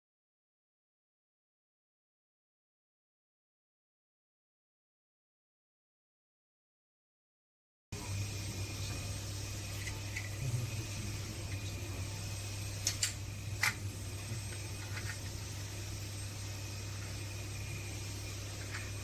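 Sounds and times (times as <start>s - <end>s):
low mechanical hum: 8.0s - 19.0s.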